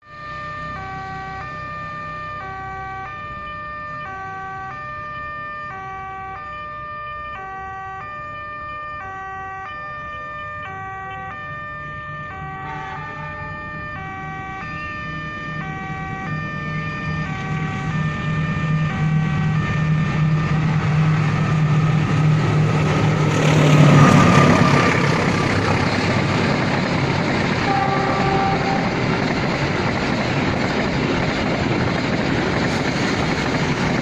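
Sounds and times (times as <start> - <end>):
two-tone level-crossing alarm: 0.1 - 21.0
freight train rumble: 9.6 - 34.0.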